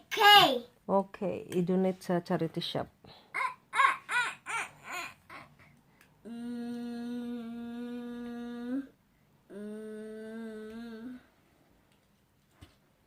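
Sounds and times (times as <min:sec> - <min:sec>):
person humming long notes: 0:06.2 - 0:11.3.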